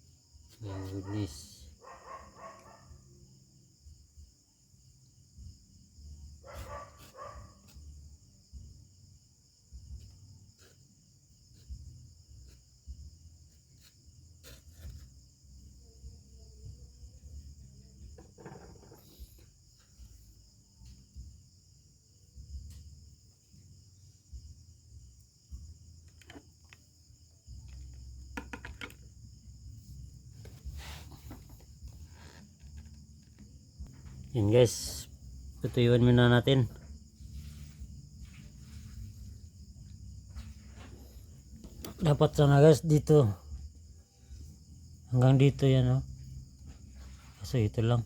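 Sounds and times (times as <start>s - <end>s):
high insect chirr: 0.0s - 48.0s
dog barking: 1.8s - 3.0s, 6.4s - 7.8s
faint knocks: 18.1s - 19.3s.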